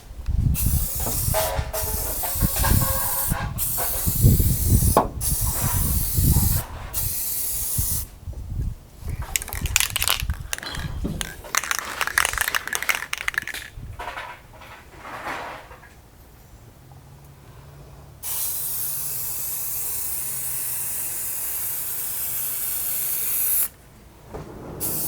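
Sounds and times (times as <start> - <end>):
paint spray hissing: 9.1 - 13.7.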